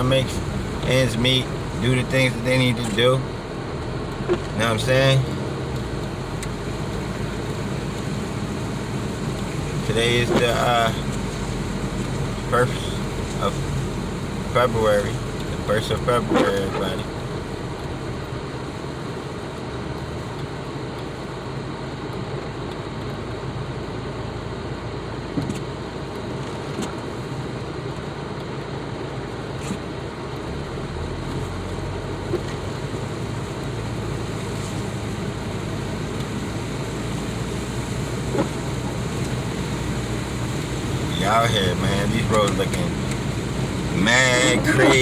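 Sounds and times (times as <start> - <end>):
car engine and road rumble: 0.0 - 45.0.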